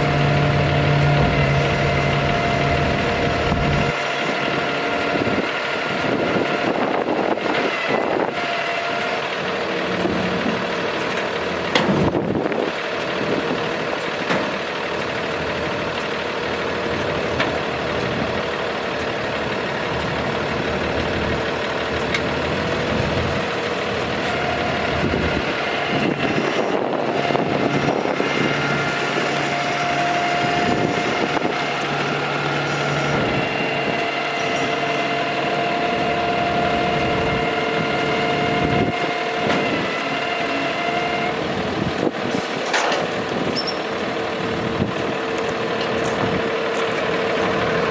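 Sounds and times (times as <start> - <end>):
steady whine: 0.0 - 9.1, 16.8 - 42.1
diesel truck engine running: 0.0 - 47.9.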